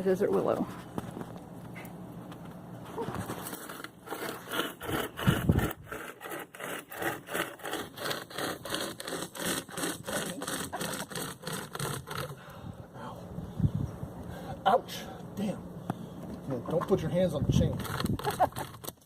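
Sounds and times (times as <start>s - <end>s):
chain saw rasping through wood: 3.0s - 12.7s, 17.5s - 19.0s.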